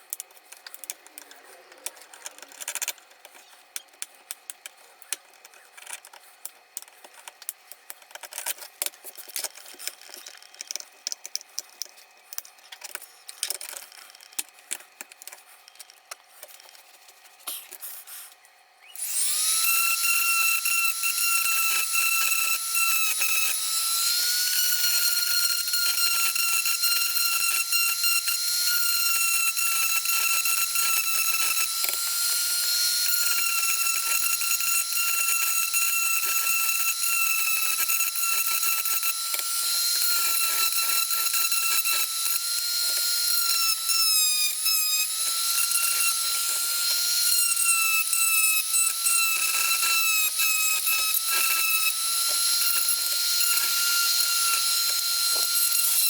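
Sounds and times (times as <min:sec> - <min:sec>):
power tool motor whining: 0:18.8 - 0:56.0.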